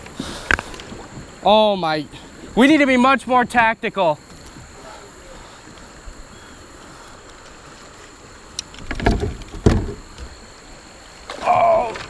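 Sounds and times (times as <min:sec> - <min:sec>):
water rushing: 0:00.0 - 0:12.0
kayak knocks and thumps: 0:02.6 - 0:04.9, 0:08.6 - 0:10.5.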